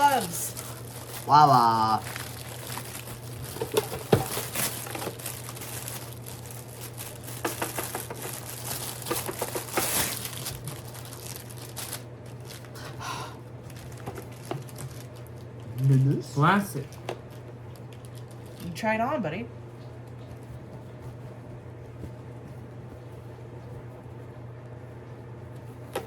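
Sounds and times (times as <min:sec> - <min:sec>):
packaging crinkling and tearing: 0:00.0 - 0:12.9, 0:13.6 - 0:16.2, 0:16.8 - 0:18.8.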